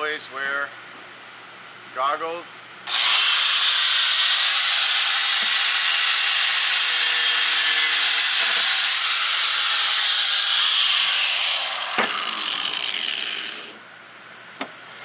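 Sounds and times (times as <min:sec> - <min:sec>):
angle grinder cutting tile: 0:02.9 - 0:13.8.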